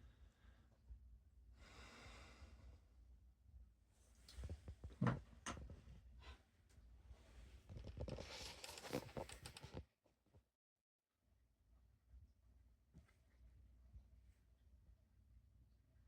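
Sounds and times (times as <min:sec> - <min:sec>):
rustling and scraping: 0:07.4 - 0:09.8.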